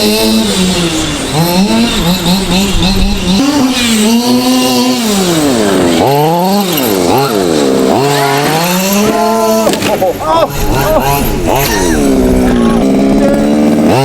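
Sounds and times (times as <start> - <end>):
small two-stroke engine revving: 0.0 - 14.0.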